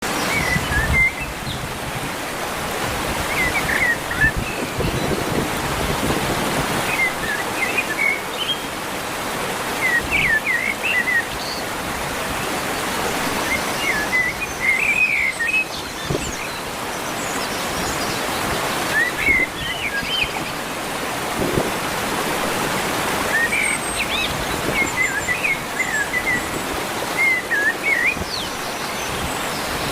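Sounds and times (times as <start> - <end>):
songbird chirping: 6.7 - 8.8, 9.7 - 20.8, 23.2 - 29.9.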